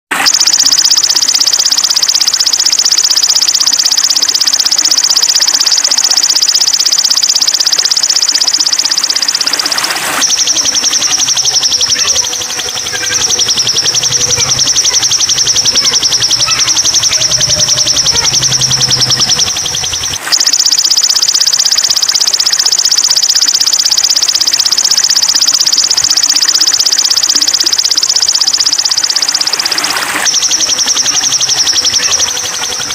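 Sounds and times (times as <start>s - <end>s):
songbird fast high trill: 0.4s - 21.8s.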